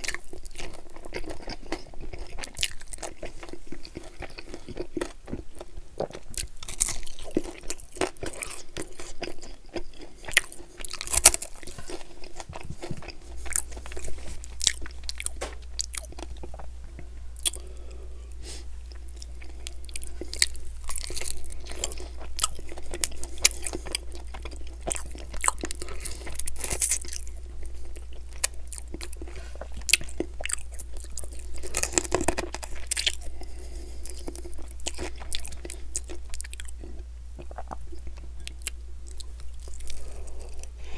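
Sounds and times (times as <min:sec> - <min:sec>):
chewing and biting chicken wings: 0:00.0 - 0:16.7, 0:18.9 - 0:40.8.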